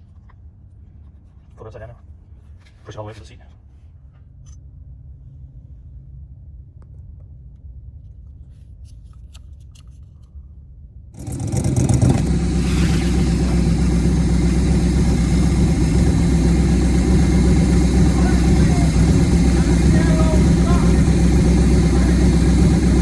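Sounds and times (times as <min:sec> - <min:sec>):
low hum: 0:10.4 - 0:23.0
truck engine running: 0:11.2 - 0:23.0.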